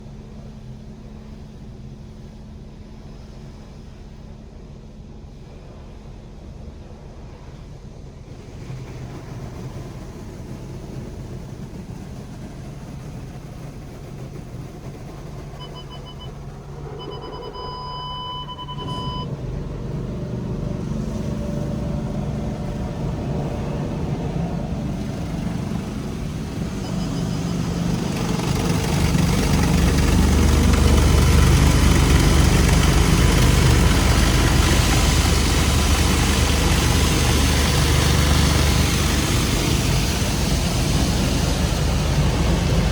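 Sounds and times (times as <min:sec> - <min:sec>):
car wash mechanical rumble: 0:00.0 - 0:42.9
rushing of wash machinery: 0:00.0 - 0:42.9
long beep tone: 0:15.6 - 0:16.4, 0:17.0 - 0:19.3
short electronic beep: 0:15.6 - 0:16.4, 0:17.0 - 0:19.3.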